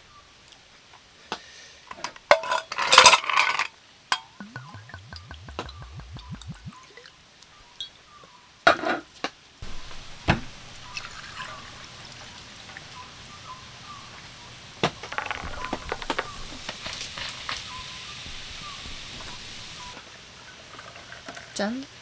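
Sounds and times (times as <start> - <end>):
rain hiss: 9.6 - 22.0
liquid pouring into a glass: 10.4 - 12.4.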